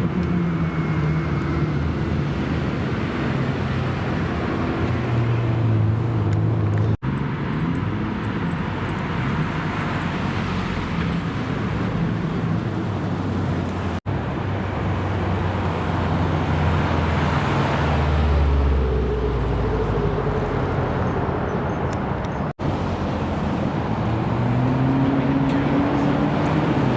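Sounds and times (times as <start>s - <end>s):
car engines rumbling: 0.0s - 26.9s.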